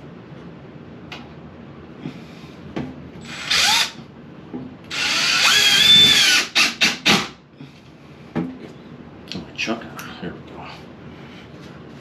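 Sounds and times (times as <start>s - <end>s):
cordless drill driving a screw: 3.3s - 4.0s, 4.9s - 7.2s.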